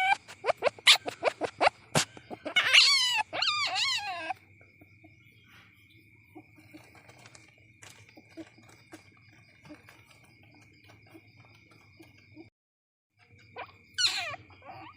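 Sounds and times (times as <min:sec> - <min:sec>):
young civet calling: 0:00.0 - 0:05.4, 0:13.4 - 0:14.9.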